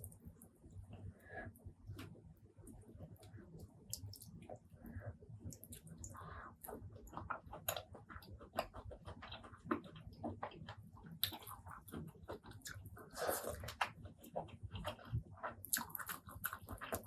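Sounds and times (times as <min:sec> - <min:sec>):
person chewing: 0:05.5 - 0:17.0.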